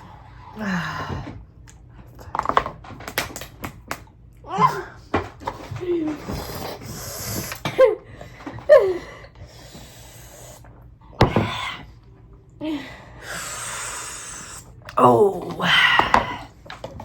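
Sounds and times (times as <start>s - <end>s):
people hissing and blowing air: 13.2s - 14.7s.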